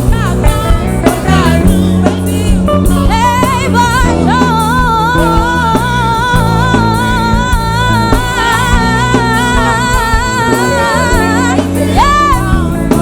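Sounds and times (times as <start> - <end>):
bass guitar: 0.0 - 13.0
drums: 0.0 - 13.0
guitar: 0.0 - 13.0
woman singing long note: 3.0 - 13.0.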